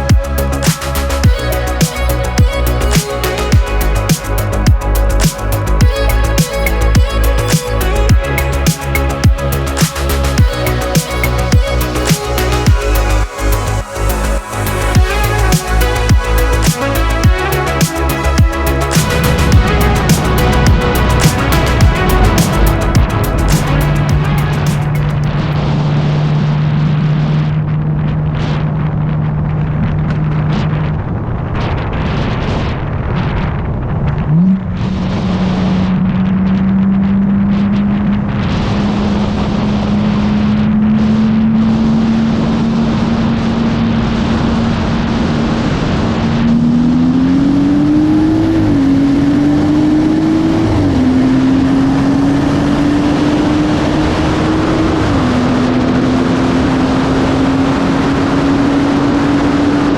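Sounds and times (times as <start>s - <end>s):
car engine revving: 0.0s - 26.5s.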